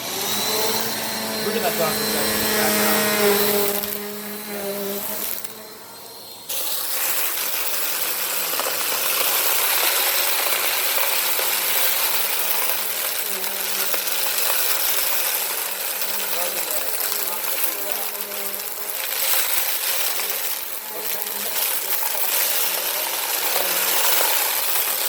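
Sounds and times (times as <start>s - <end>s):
vacuum cleaner running: 0.0s - 25.0s
sand and grit rattling: 6.5s - 25.0s.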